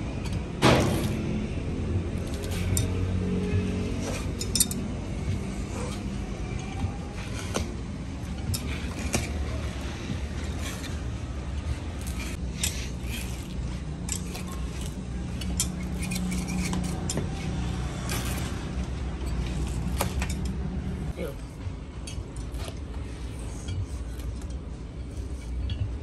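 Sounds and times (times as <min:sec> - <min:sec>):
metallic clinks and clicks: 0:02.2 - 0:07.6, 0:12.0 - 0:20.7.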